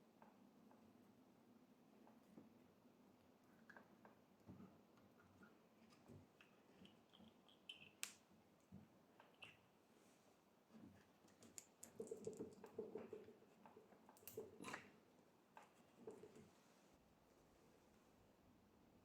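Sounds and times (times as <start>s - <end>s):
faint clicks and light knocks: 1.9s - 9.7s, 10.7s - 16.6s.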